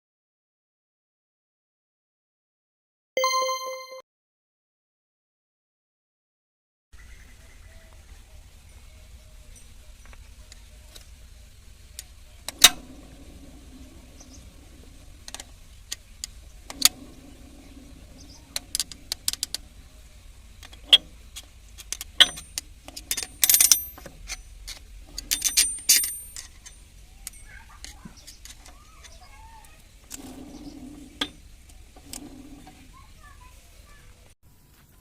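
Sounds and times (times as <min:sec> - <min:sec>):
metal tools knocking and clinking: 0:21.9 - 0:28.6
metal ringing jangles: 0:23.1 - 0:24.4, 0:25.2 - 0:27.6.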